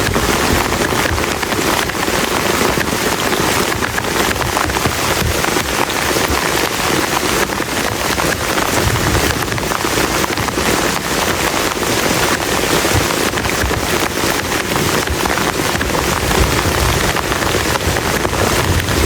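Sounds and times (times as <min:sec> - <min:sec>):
heavy rain on a plastic tarp: 0:00.0 - 0:19.0.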